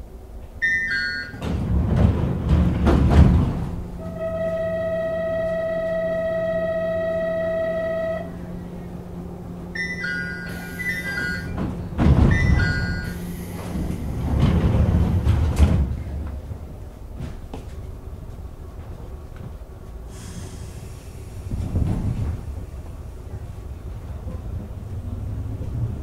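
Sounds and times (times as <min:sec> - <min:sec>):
train car low hum: 0:00.0 - 0:26.0
train doors thudding shut: 0:00.4 - 0:26.0
electronic beeps: 0:00.6 - 0:01.4, 0:09.8 - 0:11.6
electronic departure tone: 0:00.6 - 0:01.5, 0:09.5 - 0:13.7.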